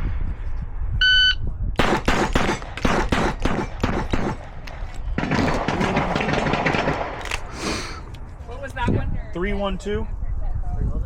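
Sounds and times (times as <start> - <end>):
pistol shots: 1.8 - 7.5.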